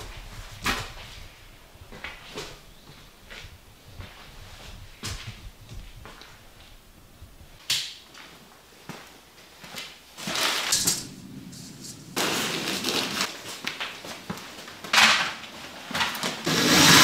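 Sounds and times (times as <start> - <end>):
scraping noise: 10.5 - 13.4.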